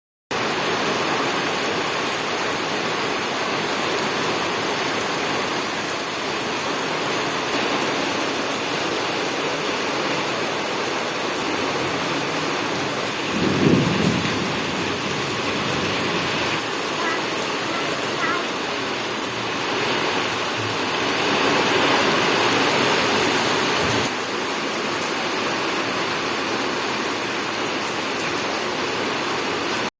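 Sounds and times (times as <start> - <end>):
heavy rain: 0.3 - 29.9
low rumble of thunder: 12.6 - 16.6.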